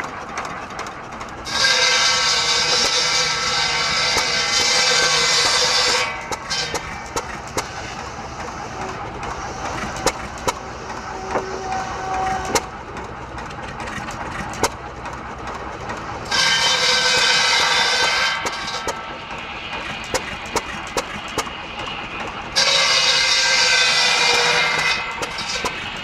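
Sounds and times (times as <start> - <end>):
buzzsaw blade cutting wood: 1.4 - 8.0, 16.3 - 19.1, 22.6 - 26.0
engine firing in sharp pops: 13.8 - 14.8, 19.8 - 21.6.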